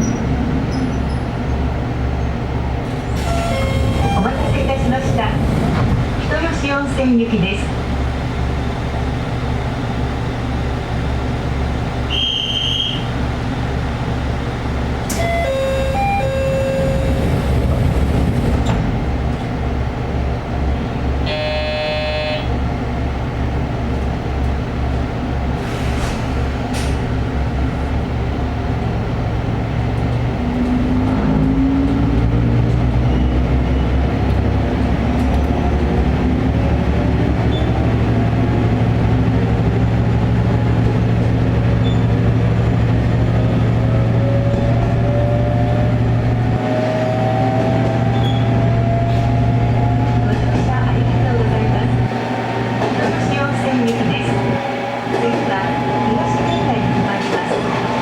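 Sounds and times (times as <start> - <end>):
buzzer tone: 21.3 - 22.5.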